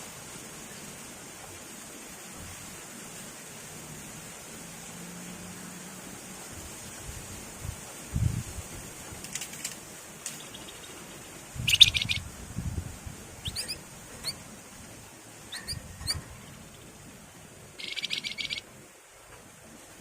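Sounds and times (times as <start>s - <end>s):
bird buzzy trill: 10.3s - 12.3s, 13.4s - 14.5s, 15.4s - 17.0s, 17.7s - 18.7s
bird whistle notes sliding up: 11.7s - 12.2s, 13.4s - 14.4s, 15.5s - 16.3s, 17.8s - 18.6s.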